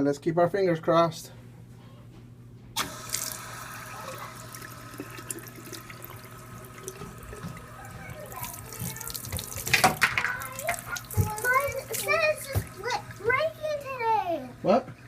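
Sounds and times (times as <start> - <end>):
tap running into a sink: 2.8 - 13.0.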